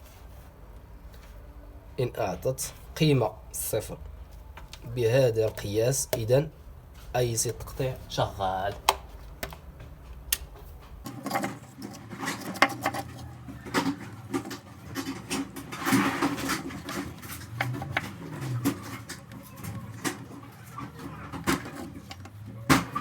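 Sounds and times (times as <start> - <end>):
tools clattering on workbench: 10.8 - 23.0.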